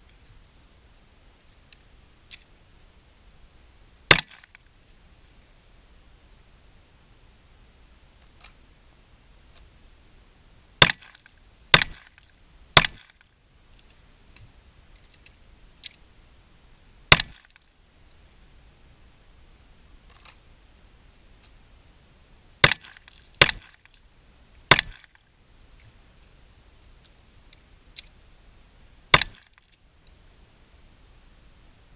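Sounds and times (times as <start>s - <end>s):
pistol shots: 4.1s - 4.5s.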